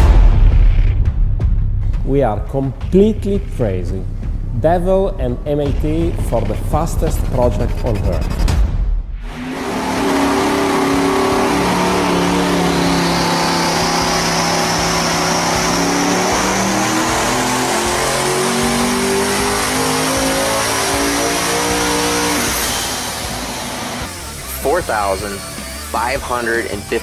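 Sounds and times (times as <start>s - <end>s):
car engine accelerating: 9.2s - 25.9s
high whine: 9.2s - 27.0s.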